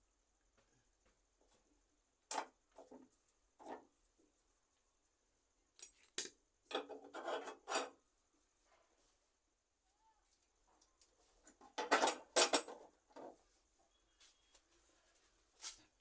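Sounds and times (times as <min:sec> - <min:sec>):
scraping strokes on hard surface: 0:06.9 - 0:08.0.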